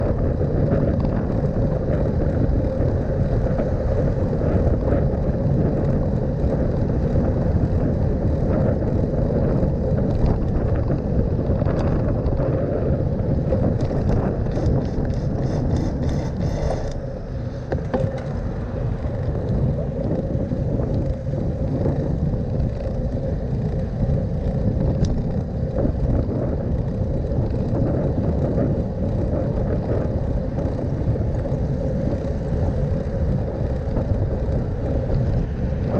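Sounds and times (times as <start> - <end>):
bicycle riding rumble: 0.0 - 35.9
city traffic: 13.0 - 25.6, 30.8 - 35.9
rapid clicking or rattling: 13.5 - 17.1.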